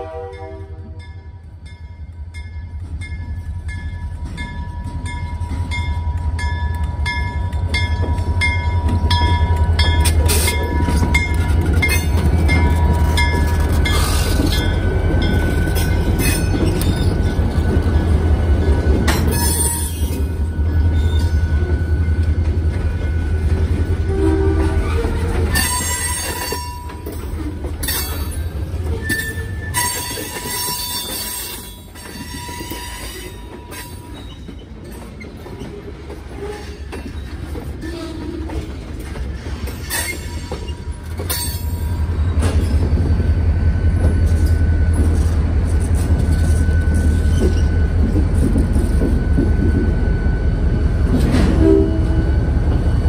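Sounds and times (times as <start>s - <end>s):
metallic clanks and squeals: 9.8s - 17.8s, 19.0s - 22.1s, 24.0s - 50.1s.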